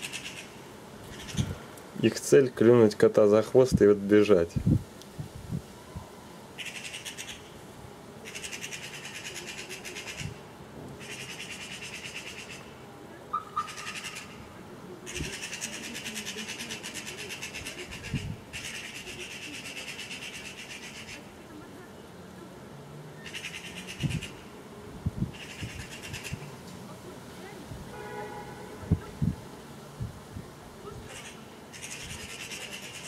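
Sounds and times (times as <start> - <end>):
magpies chattering: 0.0 - 1.6, 6.6 - 7.6, 8.2 - 10.4, 11.0 - 21.4, 23.2 - 24.5, 25.3 - 26.5, 31.0 - 33.0.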